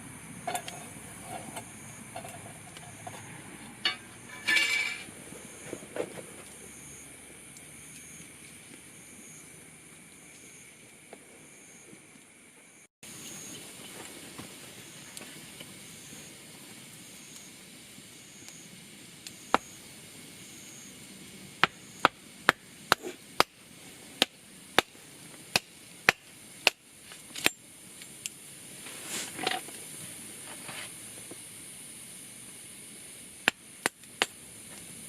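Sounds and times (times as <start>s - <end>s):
faint steady hiss: 0.0s - 35.0s
blade chopping wood: 25.5s - 26.8s
short rustle: 28.8s - 29.5s.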